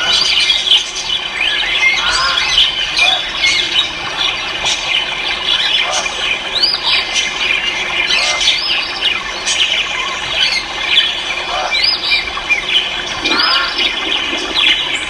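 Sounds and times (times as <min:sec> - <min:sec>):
many birds chirping: 0:00.0 - 0:15.0.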